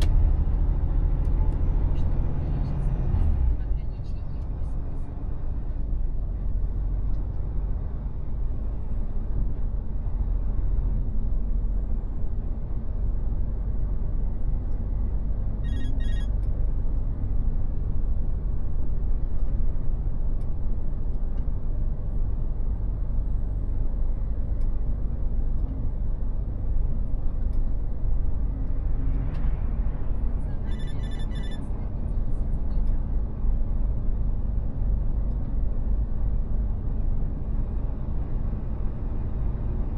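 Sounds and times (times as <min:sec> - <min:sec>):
truck engine and road noise: 0:00.0 - 0:39.9
rapid electronic beeps: 0:15.7 - 0:16.3, 0:30.7 - 0:31.6.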